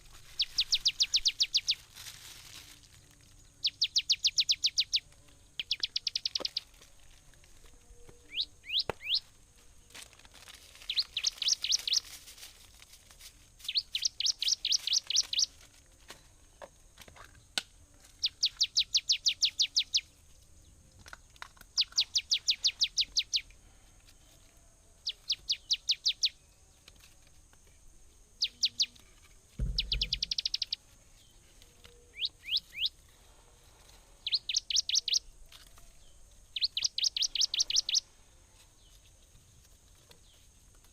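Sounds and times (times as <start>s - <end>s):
songbird trilling chirps: 0.0s - 2.0s, 2.9s - 7.0s, 7.6s - 9.4s, 10.7s - 12.3s, 13.6s - 15.7s, 18.1s - 27.0s, 27.7s - 33.2s, 34.0s - 40.5s
low thump: 29.6s - 30.7s.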